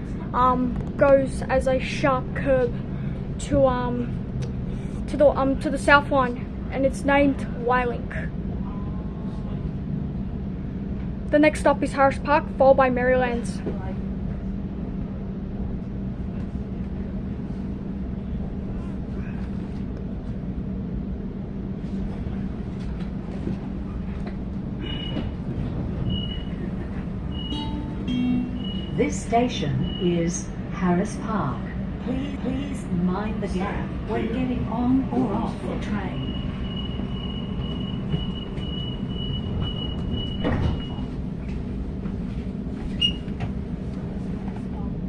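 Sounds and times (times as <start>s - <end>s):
train rumbling on rails: 0.0s - 45.0s
high warning tone: 26.0s - 31.3s, 35.8s - 41.2s
high squeals: 27.3s - 29.0s.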